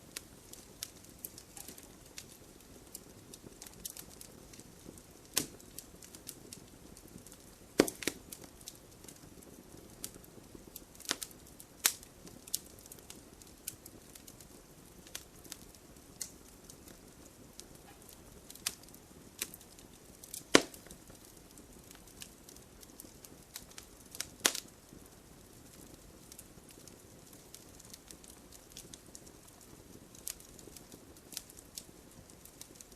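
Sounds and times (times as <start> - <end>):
faint hiss: 0.0 - 32.9
wood fire crackling: 0.0 - 32.9
logs popping: 0.5 - 2.3, 7.2 - 8.4, 18.0 - 21.4.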